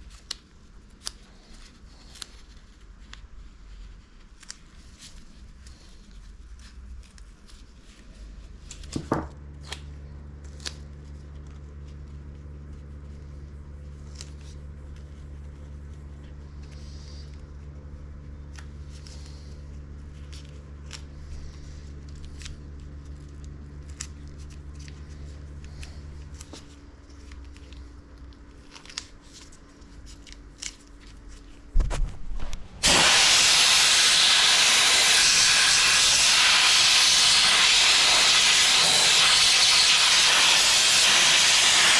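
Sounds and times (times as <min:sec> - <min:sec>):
sandblasting gun hissing: 0:32.8 - 0:41.9.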